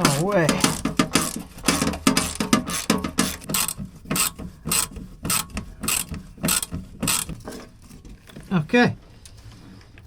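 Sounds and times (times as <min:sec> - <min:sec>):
ratchet wrench clicking: 0:00.6 - 0:07.4.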